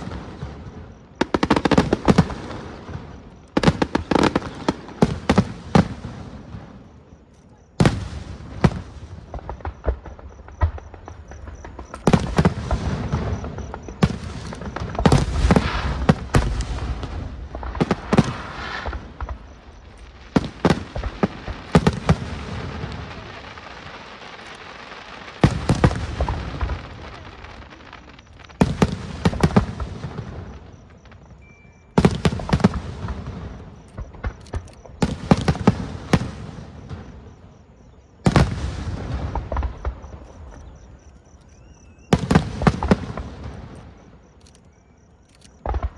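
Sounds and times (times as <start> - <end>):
fireworks bangs and booms: 0.0 - 44.4, 45.0 - 45.9.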